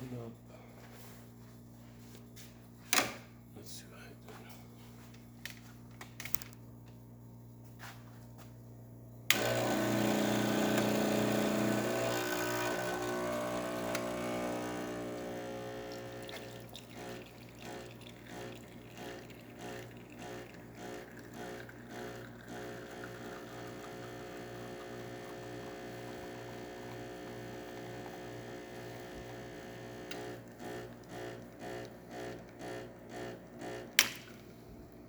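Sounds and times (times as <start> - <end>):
espresso machine clicks: 9.3 - 15.1
espresso machine pump humming: 9.3 - 35.0.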